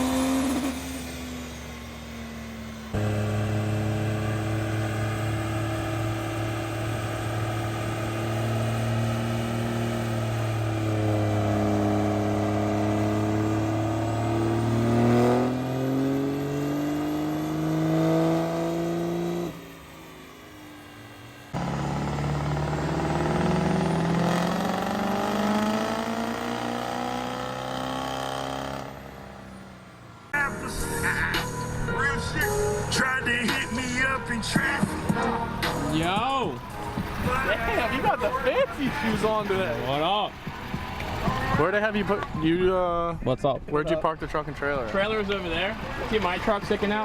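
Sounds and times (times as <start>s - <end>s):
vehicle engine running: 0.0s - 43.3s, 44.1s - 47.0s
music: 30.4s - 38.8s.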